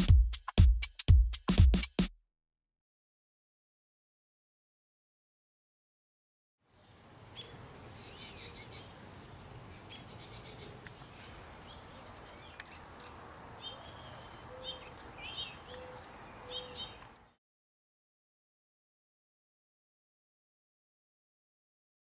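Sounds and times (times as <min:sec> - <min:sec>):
songbirds chirping: 0:06.6 - 0:17.4.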